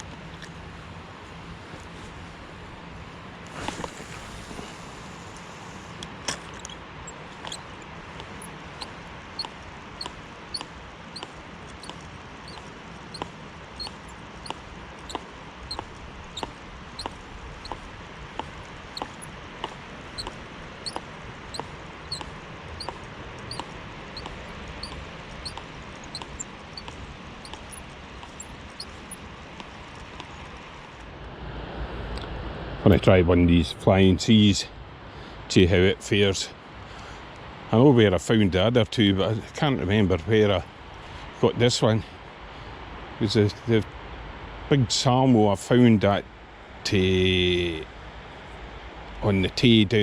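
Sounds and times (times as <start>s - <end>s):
river noise: 0.0s - 32.8s
wind: 0.0s - 50.0s
fishing reel squeaking: 6.5s - 17.8s, 18.4s - 19.4s, 20.1s - 29.7s.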